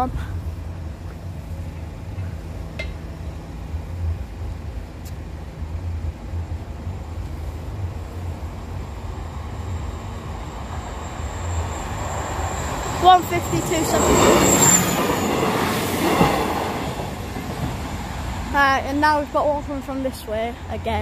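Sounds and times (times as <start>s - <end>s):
train rumble: 0.0s - 21.0s
thin high whine: 7.4s - 16.3s.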